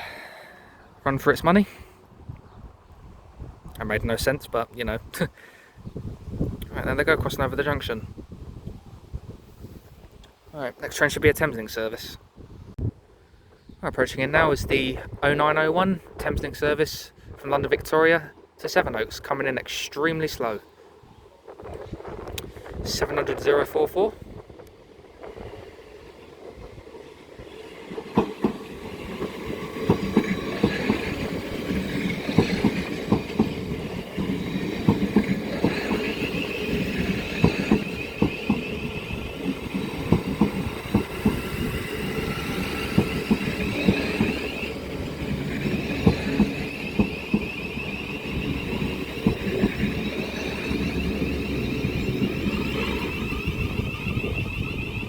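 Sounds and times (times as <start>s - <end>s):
train wheels clicking over rail joints: 24.6s - 55.0s.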